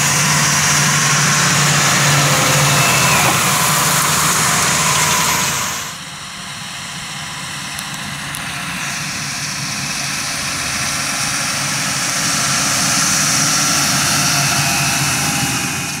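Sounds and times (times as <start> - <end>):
high hiss: 0.0 - 6.0
tractor engine running: 0.0 - 16.0.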